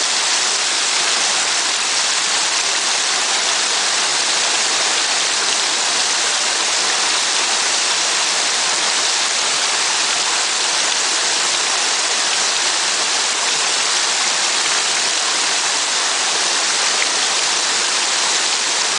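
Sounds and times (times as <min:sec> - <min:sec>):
waterfall pouring: 0:00.0 - 0:18.9.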